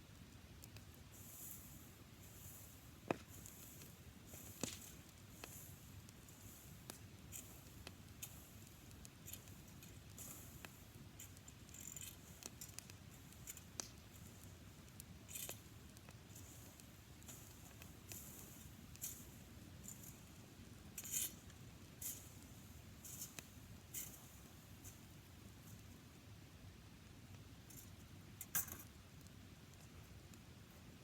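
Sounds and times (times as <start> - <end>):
grass campfire crackling: 0.0 - 31.0
fire pops: 0.6 - 22.2.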